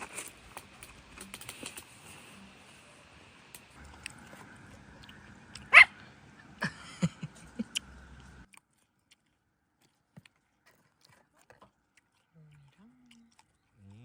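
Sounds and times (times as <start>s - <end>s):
dog barking: 5.7s - 6.0s.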